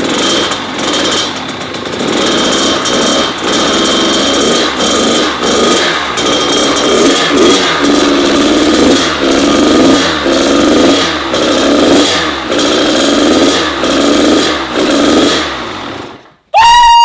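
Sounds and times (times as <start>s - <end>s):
two-stroke engine revving: 0.0s - 16.4s
loud high held tone: 16.5s - 17.0s.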